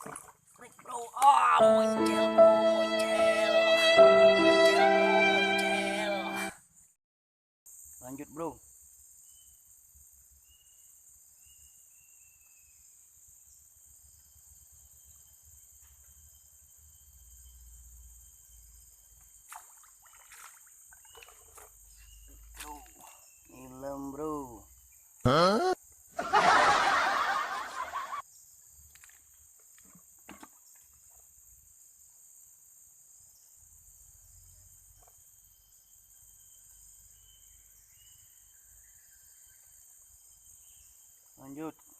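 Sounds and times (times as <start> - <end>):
high-pitched insect chorus: 7.7 - 25.2, 25.8 - 41.9
faint chirps: 21.0 - 25.8.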